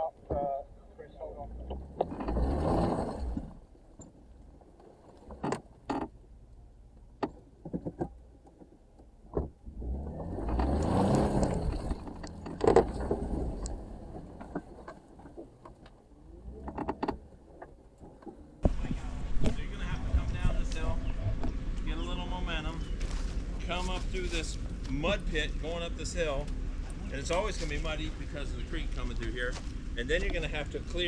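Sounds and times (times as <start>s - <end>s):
engine running and revving: 1.4s - 3.6s, 9.6s - 14.9s
sharp knocks and clunks: 7.2s - 16.0s, 16.6s - 21.6s.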